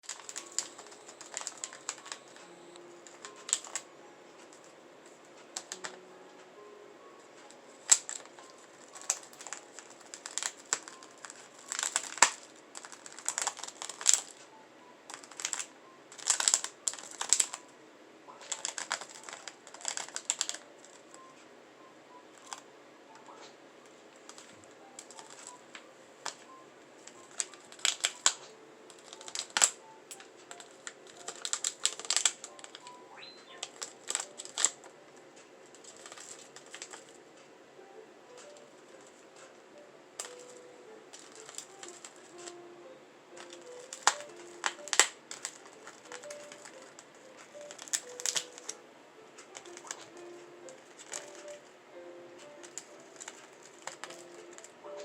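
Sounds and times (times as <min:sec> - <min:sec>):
bird pecking plastic bag: 0:00.0 - 0:03.9, 0:07.7 - 0:14.4, 0:15.1 - 0:17.6, 0:18.4 - 0:21.2, 0:27.0 - 0:34.8, 0:35.7 - 0:37.2, 0:40.2 - 0:42.6, 0:43.4 - 0:48.8, 0:49.5 - 0:51.7, 0:52.4 - 0:54.7.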